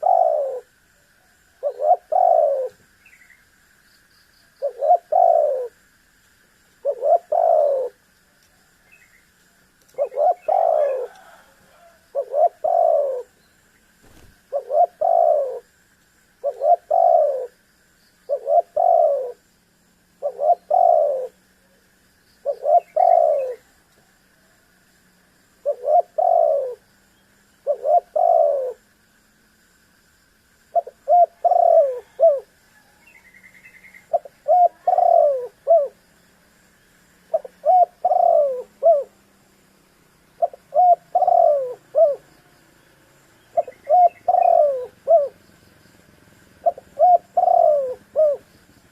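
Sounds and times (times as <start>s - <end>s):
dove cooing: 0.0s - 2.8s, 4.6s - 5.8s, 6.8s - 8.0s, 9.9s - 13.4s, 14.0s - 15.7s, 16.4s - 17.6s, 18.3s - 19.4s, 20.2s - 21.8s, 22.4s - 23.7s, 25.6s - 26.9s, 27.6s - 28.8s, 30.7s - 36.0s, 37.3s - 39.2s, 40.4s - 42.4s, 43.4s - 45.5s, 46.1s - 48.6s.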